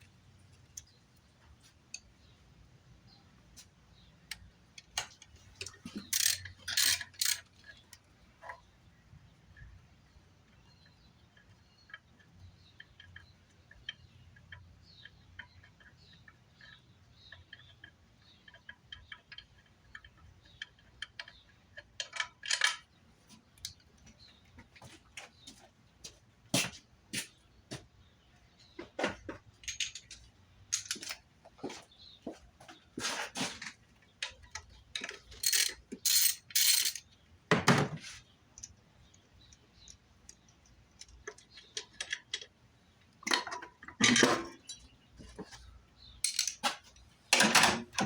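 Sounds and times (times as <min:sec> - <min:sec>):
hand tools clinking on metal: 0:35.0 - 0:37.0, 0:46.2 - 0:46.8.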